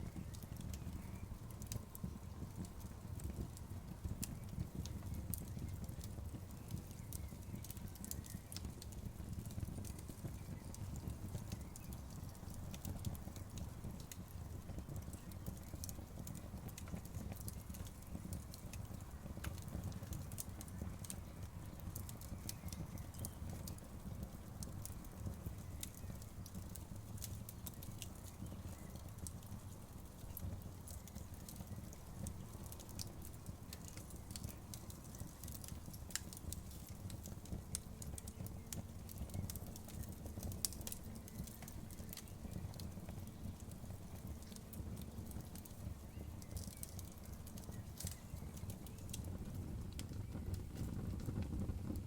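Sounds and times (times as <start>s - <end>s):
burning wood crackling and popping: 0.0s - 52.0s
wood fire rumbling: 0.0s - 52.0s.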